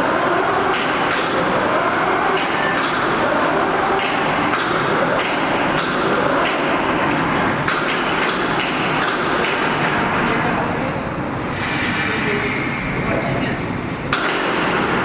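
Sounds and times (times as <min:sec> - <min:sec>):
concrete pump running: 0:00.0 - 0:10.7
sharp metallic knocks: 0:07.7 - 0:10.0.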